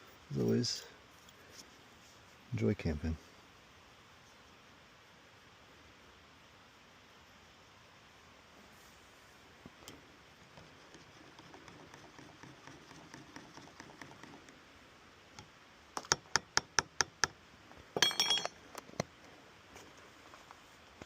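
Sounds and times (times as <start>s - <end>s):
metallic jingle: 18.0s - 18.6s.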